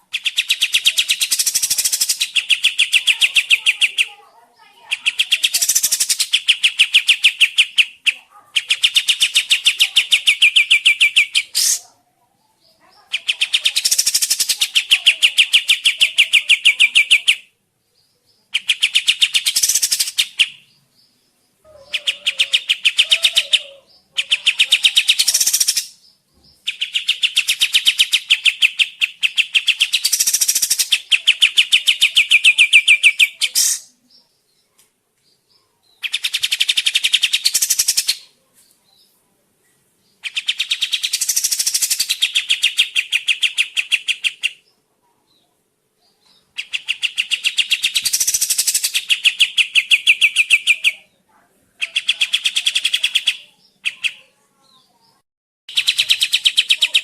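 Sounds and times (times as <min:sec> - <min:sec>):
songbird singing rapid trills: 0:00.0 - 0:11.9, 0:12.5 - 0:34.7, 0:40.0 - 0:44.7, 0:46.0 - 0:51.2.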